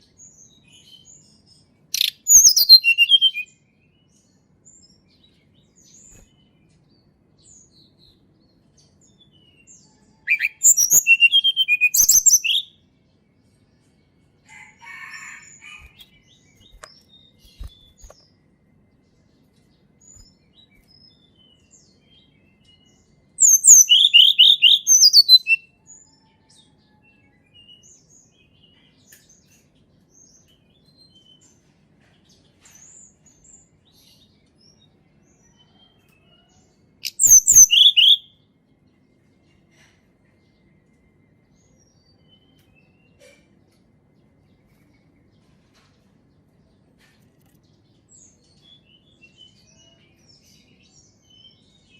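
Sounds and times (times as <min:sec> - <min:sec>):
bird twittering chirps: 0:02.0 - 0:03.5, 0:10.3 - 0:12.7, 0:15.5 - 0:18.2, 0:23.4 - 0:25.6, 0:37.0 - 0:38.3.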